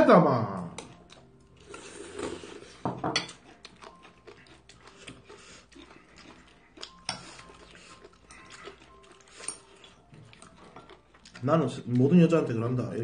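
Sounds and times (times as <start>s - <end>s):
chewing and mouth sounds: 0.6s - 12.9s.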